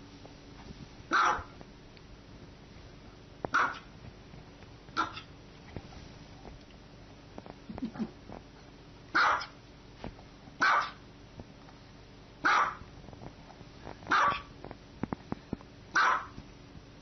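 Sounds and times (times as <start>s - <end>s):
dog barking: 1.1s - 1.6s, 3.5s - 3.9s, 5.0s - 5.3s, 9.1s - 9.6s, 10.6s - 11.0s, 12.4s - 12.8s, 14.1s - 14.5s, 15.9s - 16.4s.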